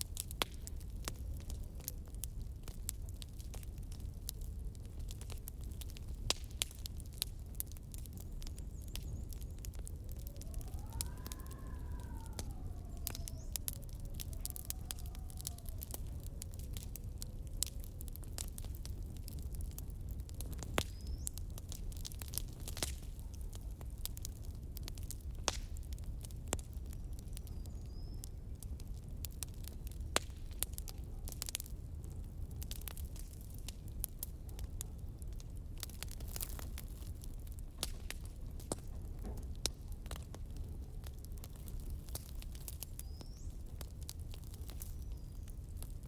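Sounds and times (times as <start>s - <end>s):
low rumble of wind: 0.0s - 46.0s
wood fire crackling and popping: 0.0s - 46.0s
wind howling: 8.4s - 25.0s.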